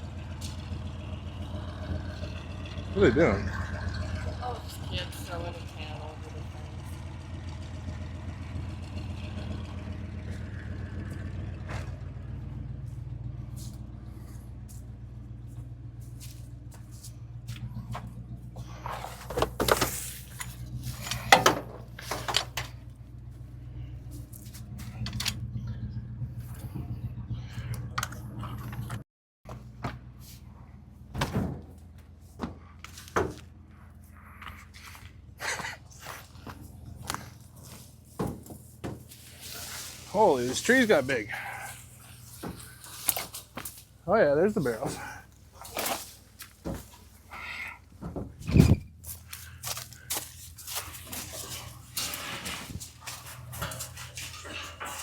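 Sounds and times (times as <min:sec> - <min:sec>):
truck engine idling: 0:00.0 - 0:55.0
sharp clunks and knocks: 0:17.8 - 0:22.9, 0:31.1 - 0:33.5, 0:38.1 - 0:39.2, 0:47.9 - 0:48.9.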